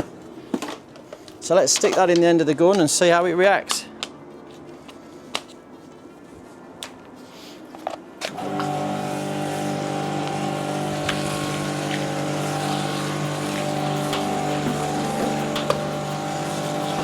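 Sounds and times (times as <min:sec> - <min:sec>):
pressure washer motor hum: 0:08.3 - 0:17.0
water spraying: 0:08.3 - 0:17.0.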